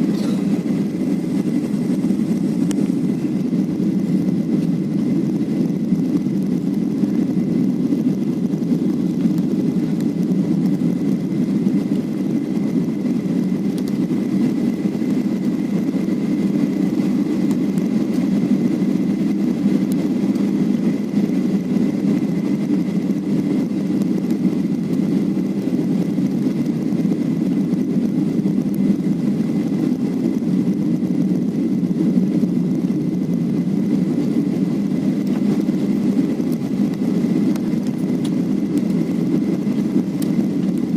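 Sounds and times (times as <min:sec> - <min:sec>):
faint high whine: 0:00.0 - 0:04.1
airliner cabin engine drone: 0:00.0 - 0:40.9.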